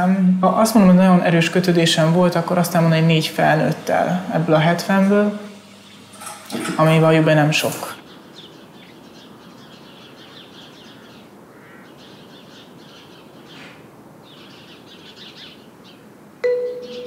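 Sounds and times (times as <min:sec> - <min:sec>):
small birds chirping faintly: 0:08.0 - 0:17.0
sustained musical note: 0:16.4 - 0:17.0.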